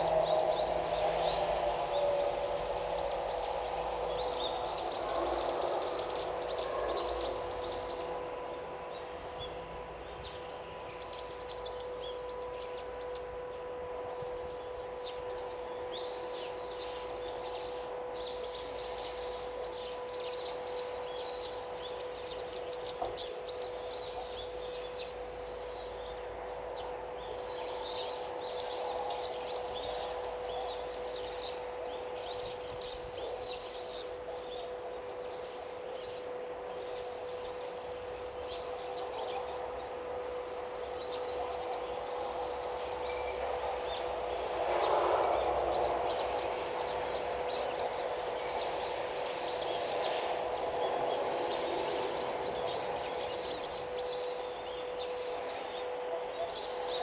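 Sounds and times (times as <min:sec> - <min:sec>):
steady low hum: 0:00.0 - 0:57.0
small birds chirping: 0:45.7 - 0:57.0.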